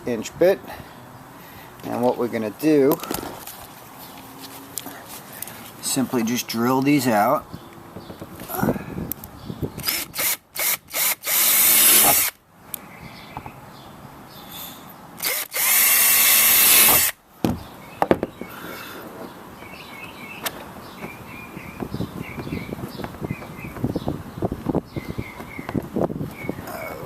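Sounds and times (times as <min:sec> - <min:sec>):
power drill drilling: 0:09.8 - 0:12.4, 0:15.2 - 0:17.2.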